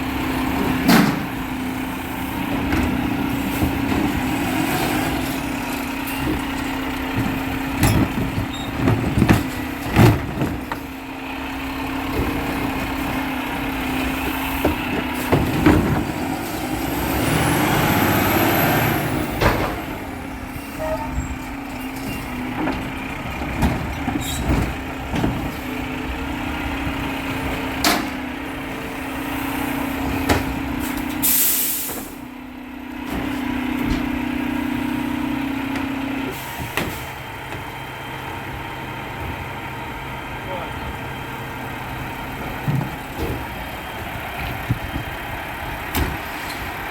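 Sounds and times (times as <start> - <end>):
garbage truck engine running: 0.0 - 46.9
metal clanks and knocks: 6.1 - 11.0, 20.9 - 25.7
air brake hiss: 31.2 - 32.1.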